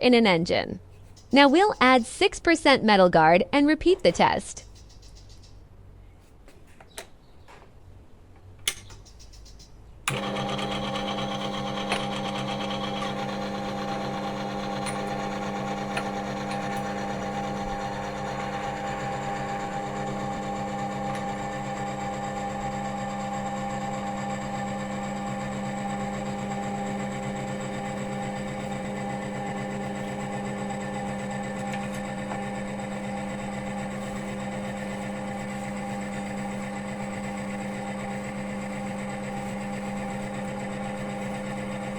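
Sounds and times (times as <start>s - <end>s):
test machine motor humming: 10.1s - 41.9s.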